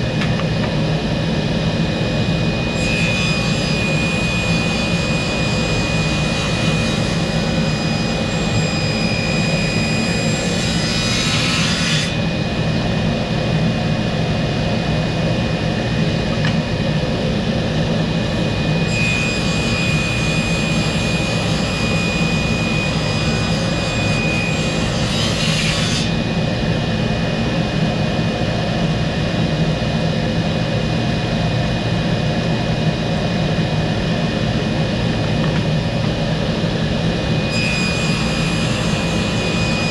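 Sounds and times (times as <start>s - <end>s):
woodworking power tool running: 0.0s - 12.2s, 36.5s - 39.9s.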